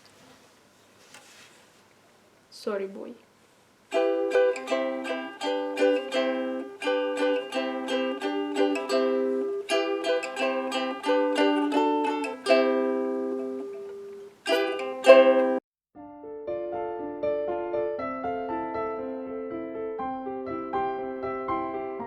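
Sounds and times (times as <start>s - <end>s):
ukulele strumming chords: 3.9s - 15.6s.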